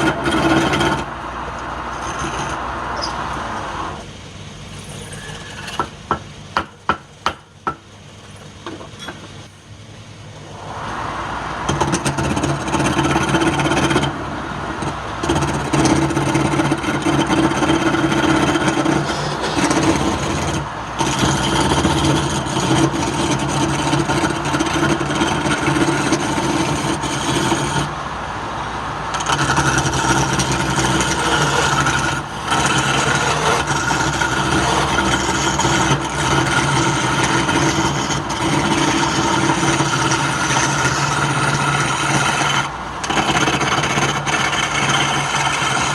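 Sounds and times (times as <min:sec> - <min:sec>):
tool scraping spinning wood: 0:00.0 - 0:01.2, 0:01.9 - 0:03.2, 0:04.7 - 0:07.5, 0:11.6 - 0:28.0, 0:29.1 - 0:45.9
wood lathe motor humming: 0:11.7 - 0:27.9, 0:29.1 - 0:45.9.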